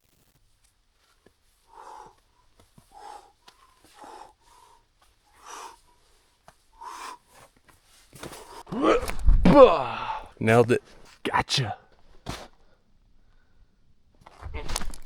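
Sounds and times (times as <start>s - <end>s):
person breathing hard: 1.6s - 7.5s, 8.2s - 10.4s.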